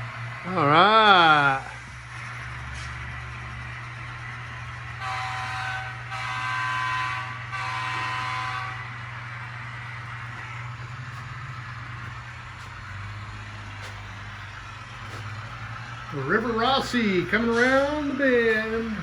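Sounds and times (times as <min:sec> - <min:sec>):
low train hum: 0:00.0 - 0:19.0
locomotive horn blasts: 0:04.8 - 0:09.4.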